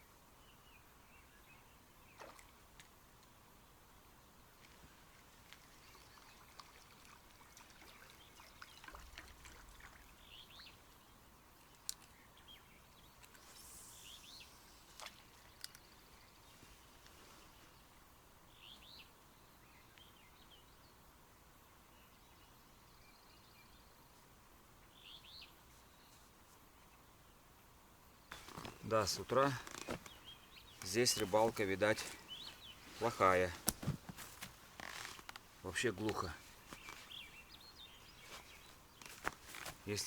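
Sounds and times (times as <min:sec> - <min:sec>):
faint bird chirps: 0:04.2 - 0:21.0
faint clicks: 0:11.6 - 0:12.2, 0:14.9 - 0:16.0.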